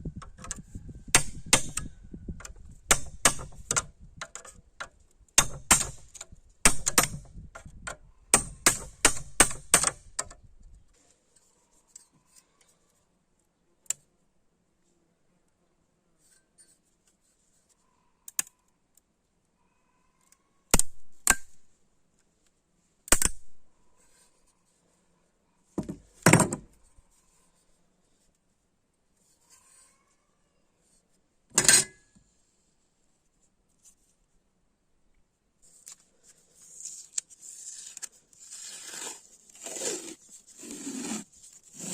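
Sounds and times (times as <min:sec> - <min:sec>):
metal tools clacking and knocking: 0:31.5 - 0:32.0.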